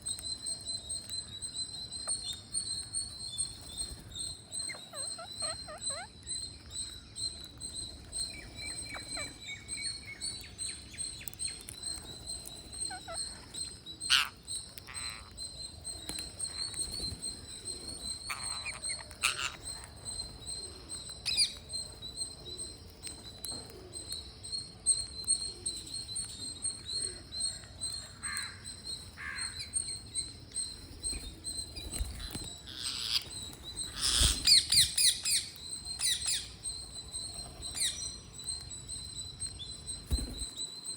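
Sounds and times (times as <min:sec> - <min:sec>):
parrots chirping: 0:04.6 - 0:06.2, 0:08.0 - 0:15.4, 0:16.0 - 0:22.0, 0:28.1 - 0:40.4
parrots squawking: 0:04.7 - 0:06.1, 0:12.9 - 0:13.5, 0:14.1 - 0:15.3, 0:18.3 - 0:19.9, 0:32.7 - 0:33.3, 0:33.9 - 0:35.4.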